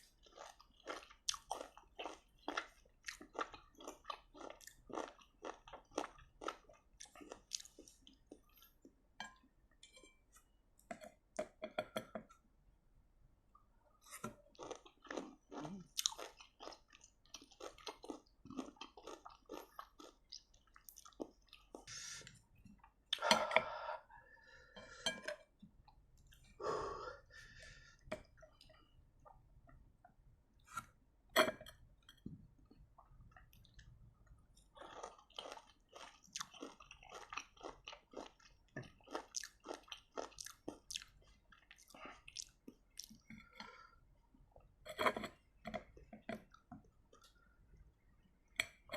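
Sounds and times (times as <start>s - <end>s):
chewing and crunching: 0.0s - 8.9s, 14.5s - 21.9s, 32.7s - 43.9s.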